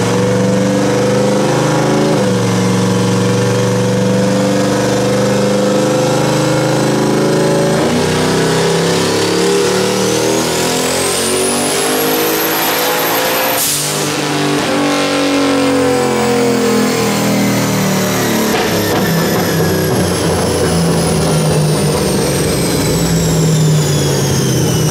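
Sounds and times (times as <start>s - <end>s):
engine under hard throttle: 0.0s - 24.9s
burst of released boost: 13.5s - 14.2s.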